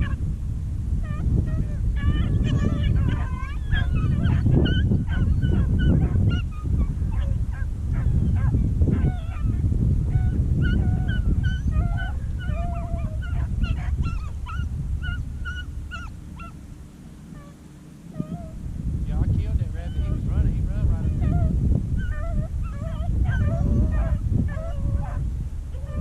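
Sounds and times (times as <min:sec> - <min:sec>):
hounds baying: 0:00.0 - 0:00.2, 0:01.0 - 0:16.7, 0:17.3 - 0:18.6, 0:19.7 - 0:26.0
brush and handling rumble: 0:13.4 - 0:26.0.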